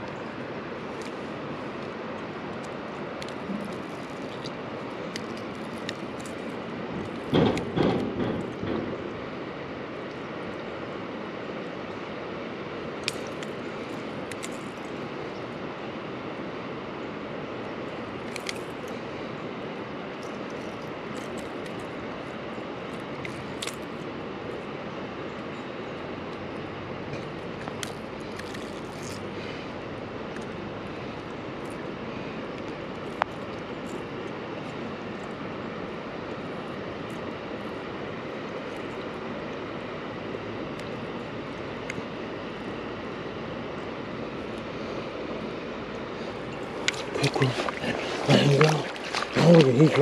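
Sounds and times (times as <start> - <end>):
creek water rushing: 0.0 - 7.2, 8.5 - 50.0.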